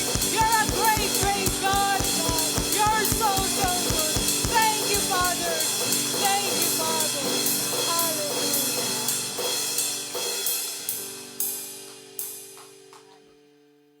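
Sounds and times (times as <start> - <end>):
sustained keyboard chords: 0.0 - 7.3.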